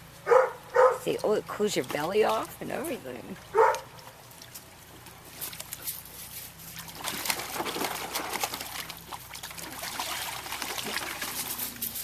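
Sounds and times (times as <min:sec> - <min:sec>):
water sloshing and splashing: 0:00.8 - 0:12.0.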